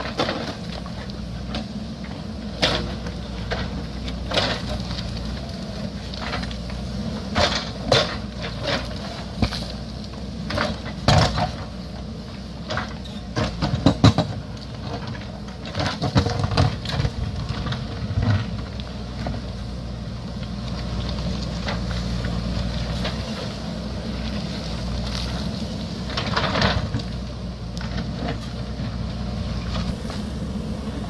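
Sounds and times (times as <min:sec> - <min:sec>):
diesel engine under load: 0:00.0 - 0:31.0
rocks knocking and cracking: 0:12.6 - 0:19.5.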